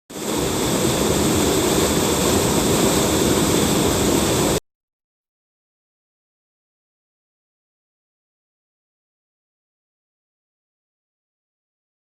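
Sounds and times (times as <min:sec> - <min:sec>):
stream water rushing: 0:00.1 - 0:04.6.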